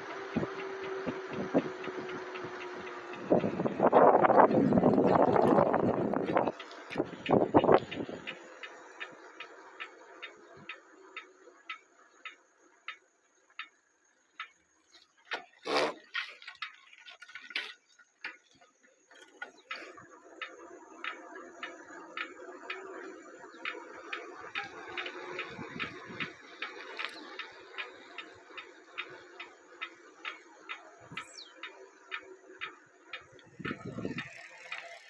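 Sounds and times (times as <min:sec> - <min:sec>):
bike clicking mechanically: 0:00.0 - 0:35.0.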